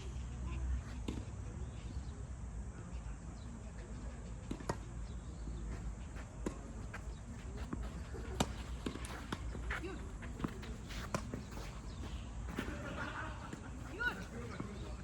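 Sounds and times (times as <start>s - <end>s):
tennis ball struck by rackets: 7.7s - 11.5s.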